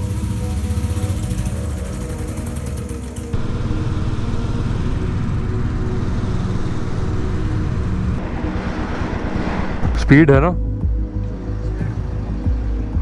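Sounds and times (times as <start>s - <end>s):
motorcycle engine running: 0.0s - 8.8s, 11.8s - 13.0s
road and wind noise: 0.0s - 13.0s.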